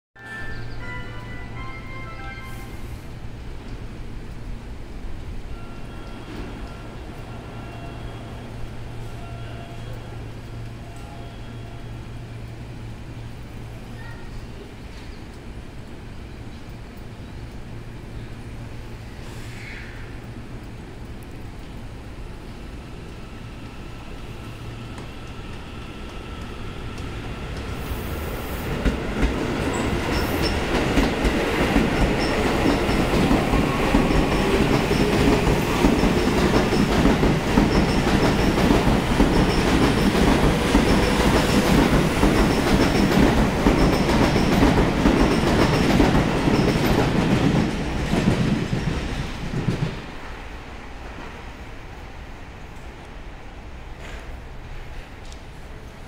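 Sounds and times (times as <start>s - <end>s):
train wheels clattering: 28.6s - 50.0s.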